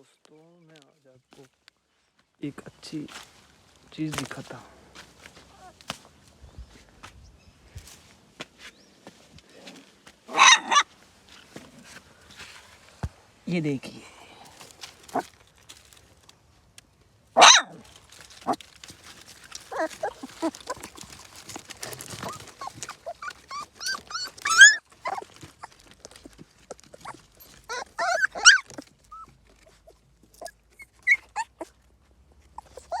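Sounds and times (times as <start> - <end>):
dogs whining and yelping: 10.3 - 10.8, 17.4 - 17.8, 19.6 - 31.8, 32.4 - 33.0.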